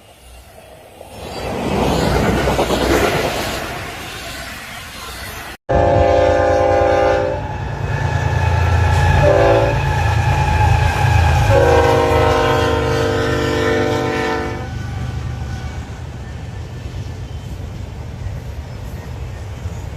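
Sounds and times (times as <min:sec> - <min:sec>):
passing train rumble: 0:00.0 - 0:19.9
locomotive air horn blasts: 0:05.7 - 0:15.0.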